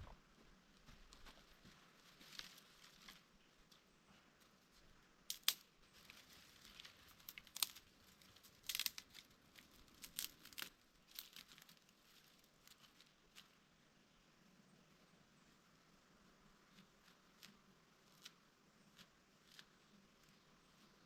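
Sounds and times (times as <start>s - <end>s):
dry twigs snapping: 5.3s - 13.6s.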